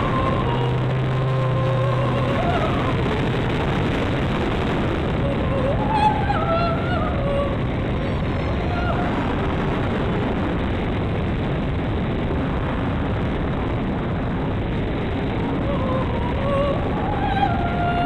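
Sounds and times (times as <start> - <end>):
electric motor and propeller whine: 0.0 - 13.4
wind buffeting microphone: 0.0 - 18.0.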